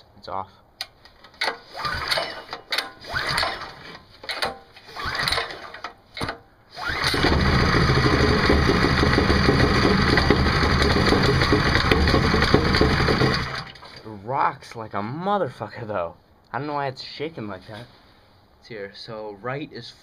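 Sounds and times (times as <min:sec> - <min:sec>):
recoil pull cord pulls: 0:01.2 - 0:14.0
small engine running steadily: 0:06.8 - 0:13.7.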